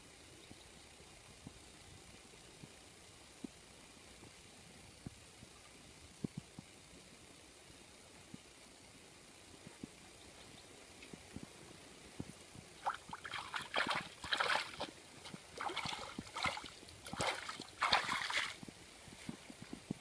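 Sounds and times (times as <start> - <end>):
water splashing: 12.8 - 18.7.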